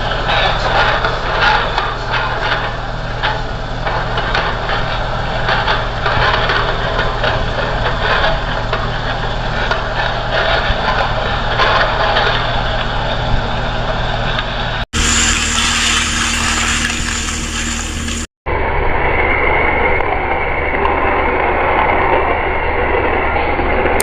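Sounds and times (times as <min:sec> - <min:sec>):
backhoe diesel engine running: 0:00.0 - 0:18.3.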